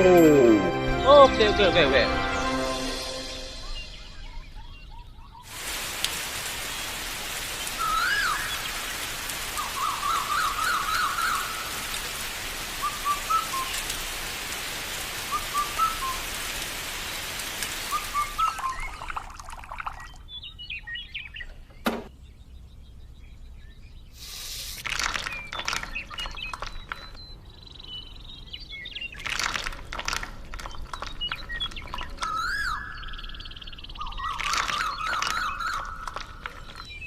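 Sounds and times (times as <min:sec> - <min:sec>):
small birds chirping: 0:03.5 - 0:37.0
steady hiss: 0:05.4 - 0:19.1, 0:24.1 - 0:25.4.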